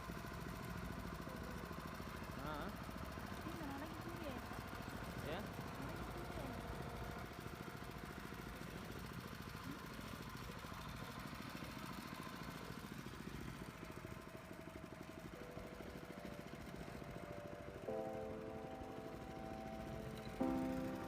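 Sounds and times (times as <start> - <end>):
boat engine rumbling: 0.3 - 21.0
music with held notes: 15.2 - 21.0.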